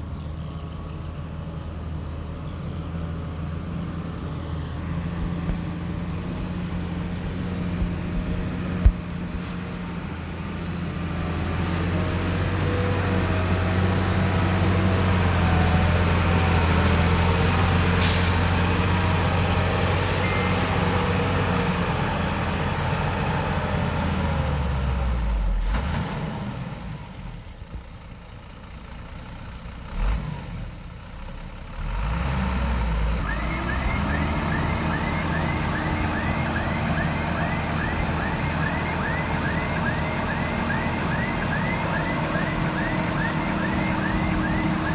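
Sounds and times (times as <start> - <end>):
diesel engine running under load: 0.0 - 44.9
brief hiss: 18.0 - 18.9
reversing alarm beeping: 19.8 - 21.5, 33.2 - 44.9.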